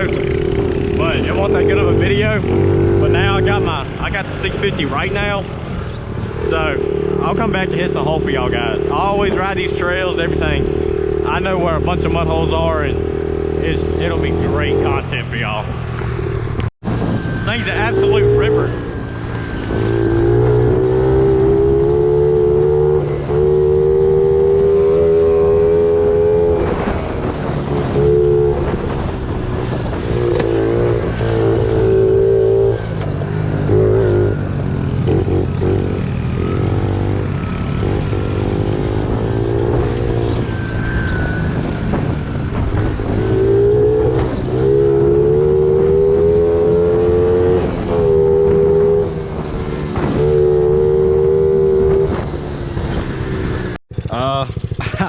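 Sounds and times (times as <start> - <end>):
small motorcycle engine revving: 17.4 - 28.9, 30.0 - 42.2, 42.8 - 55.0.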